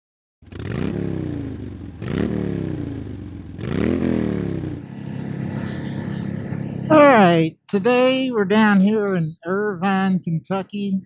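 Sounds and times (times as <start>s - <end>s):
motorcycle engine revving: 0.4s - 4.9s.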